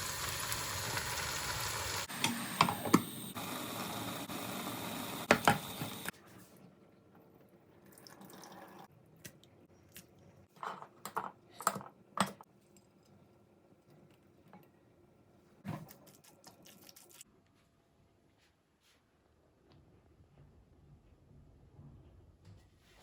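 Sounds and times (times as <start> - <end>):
light kitchen knocks and clicks: 5.3 - 6.0.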